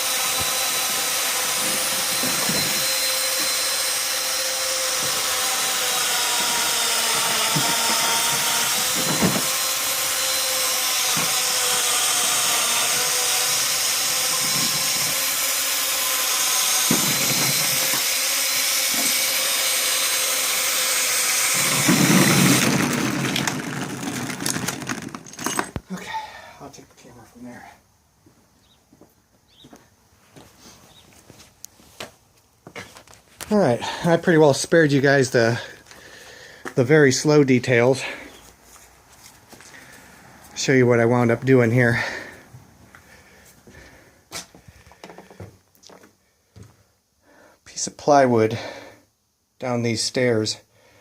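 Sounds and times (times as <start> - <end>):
electric motor whining: 0.0 - 25.8.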